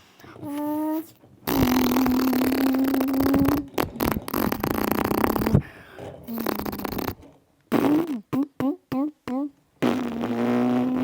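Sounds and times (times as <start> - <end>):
boy imitating car engine: 0.4 - 5.7, 6.3 - 11.0.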